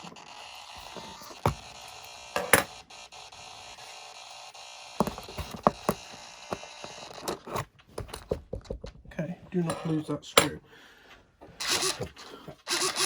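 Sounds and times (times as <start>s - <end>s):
small parts clicking on workbench: 0.8s - 2.8s.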